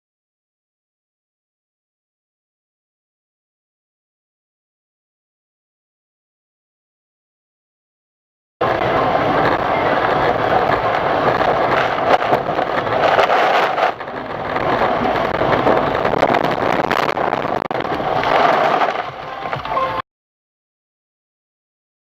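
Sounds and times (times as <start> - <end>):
vehicle road and wind noise: 8.6 - 20.0.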